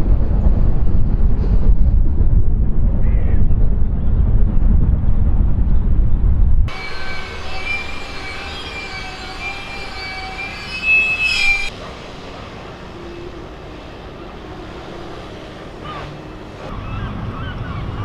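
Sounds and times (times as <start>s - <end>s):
steady train rumble: 0.0s - 18.0s
train wheels squealing on rails: 6.7s - 16.7s.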